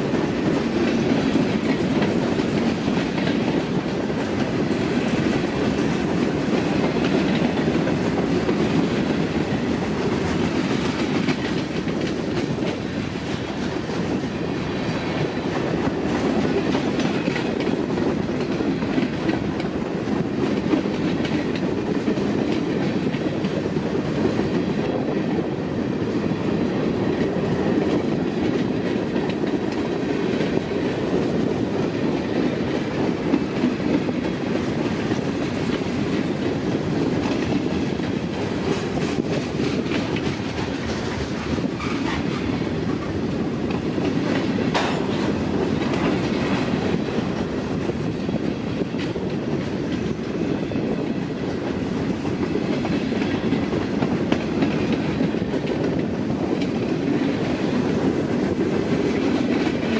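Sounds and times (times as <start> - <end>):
freight train rumbling: 0.0 - 59.9
wheels clicking over rail joints: 0.1 - 13.8, 27.0 - 59.9.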